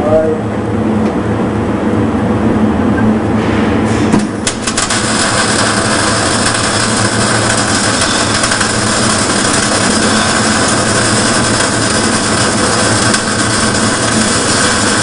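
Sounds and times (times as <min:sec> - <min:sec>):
low hum: 0:00.0 - 0:15.0
welding arc crackling: 0:04.2 - 0:15.0.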